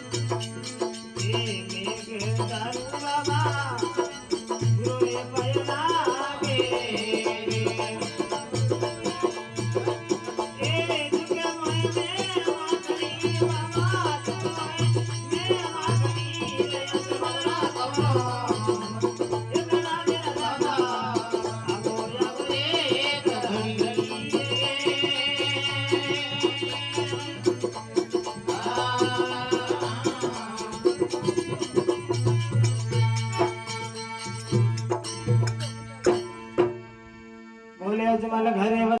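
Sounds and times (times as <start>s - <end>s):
rattling percussion: 0.0s - 37.0s.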